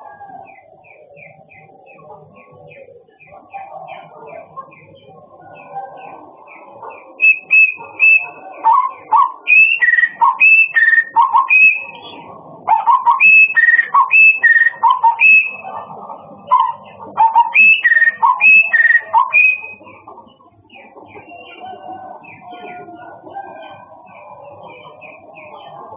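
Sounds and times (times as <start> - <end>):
songbird whistling: 7.2 - 12.1, 12.8 - 15.7, 16.5 - 19.8.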